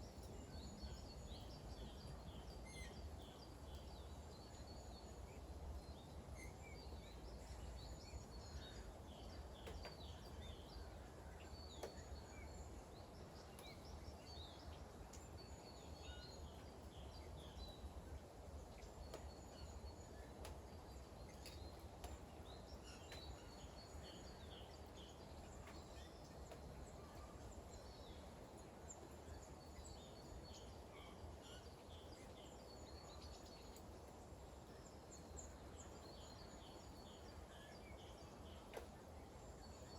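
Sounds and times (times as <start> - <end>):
light rain: 0.0 - 39.9
water dripping ticks: 18.6 - 27.6.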